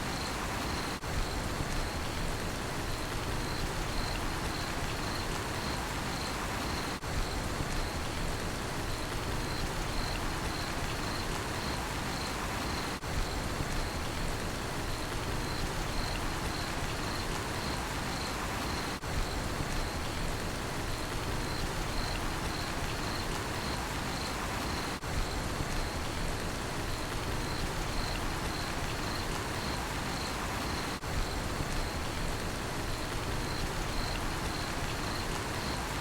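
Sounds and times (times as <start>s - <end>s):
cricket chirping: 0.0s - 1.0s, 2.9s - 7.0s, 9.3s - 13.0s, 15.3s - 20.2s, 21.3s - 25.0s, 27.3s - 32.2s, 32.9s - 36.0s
steady rain: 0.0s - 36.0s.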